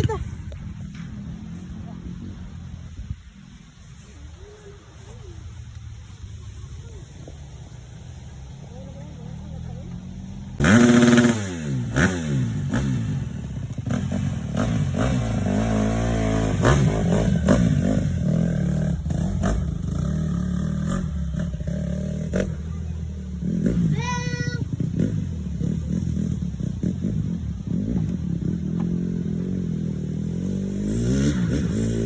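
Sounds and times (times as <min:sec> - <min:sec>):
dirt bike engine revving: 0:10.2 - 0:32.0.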